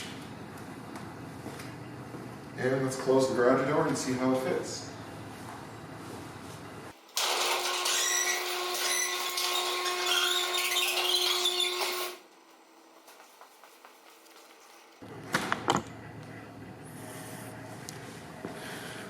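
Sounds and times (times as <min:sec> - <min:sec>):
garage door opener motor whine: 0:07.0 - 0:12.3.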